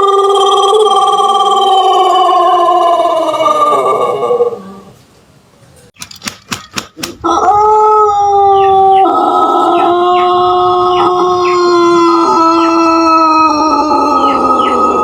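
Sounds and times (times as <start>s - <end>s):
rooster crowing: 7.2s - 15.0s.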